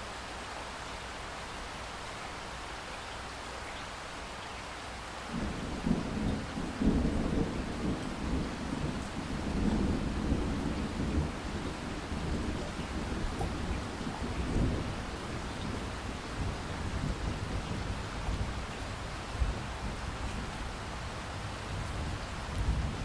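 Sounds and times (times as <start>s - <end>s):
rain hissing: 0.0s - 23.0s
thunder rumbling: 5.3s - 23.0s.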